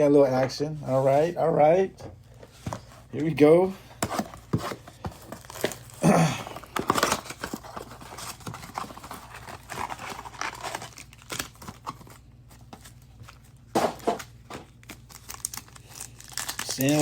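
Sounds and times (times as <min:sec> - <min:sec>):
cards tapping and sliding: 0:04.0 - 0:05.8
foil wrappers rustling: 0:04.0 - 0:17.0.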